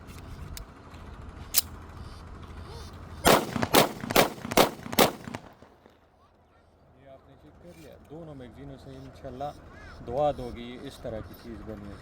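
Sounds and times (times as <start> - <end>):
pistol shots with echo: 3.3 - 5.8.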